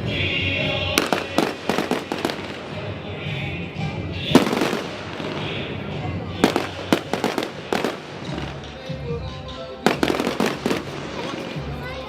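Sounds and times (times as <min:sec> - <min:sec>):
firework bangs and crackles: 0:00.0 - 0:09.0, 0:09.8 - 0:12.0.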